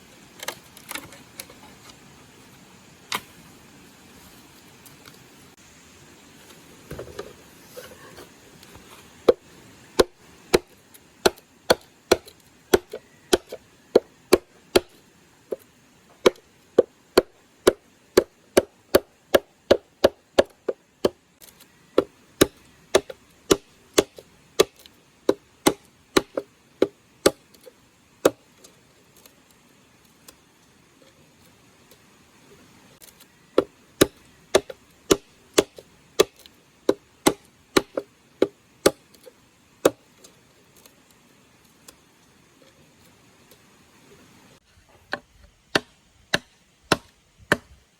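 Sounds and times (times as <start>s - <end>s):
blade chopping wood: 9.2s - 28.4s, 33.0s - 40.1s, 45.1s - 47.8s.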